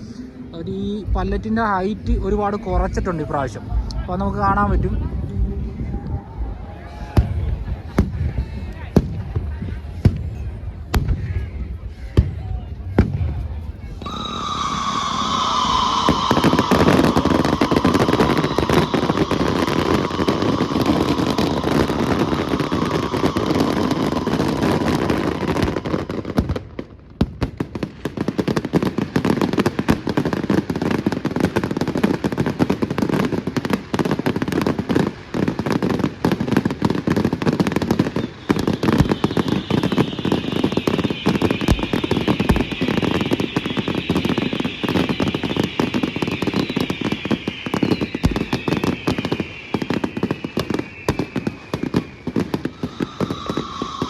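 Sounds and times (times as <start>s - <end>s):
firecrackers and fireworks bangs: 0.0s - 54.0s
high tone gliding downward: 14.0s - 26.4s, 52.6s - 54.0s.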